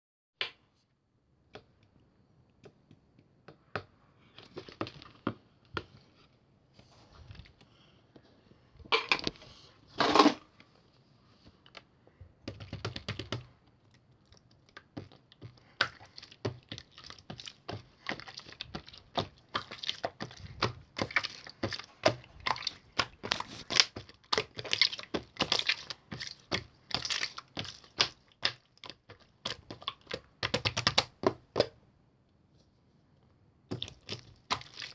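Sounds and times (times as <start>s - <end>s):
slime squished by hand: 33.7s - 34.9s.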